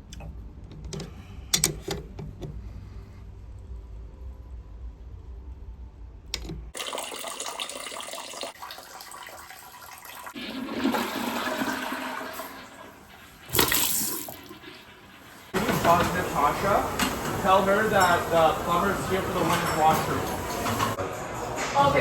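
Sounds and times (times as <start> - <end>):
low hum: 0.0 - 6.7
toilet flushing water rush: 6.7 - 21.0.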